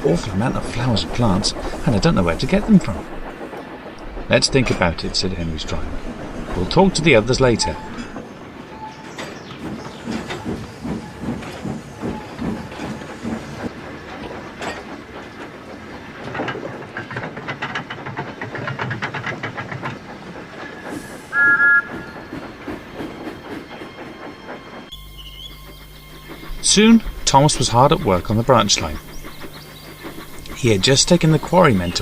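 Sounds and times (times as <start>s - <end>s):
steam locomotive chuffing: 0.0s - 32.0s
steam whistle: 21.2s - 22.1s.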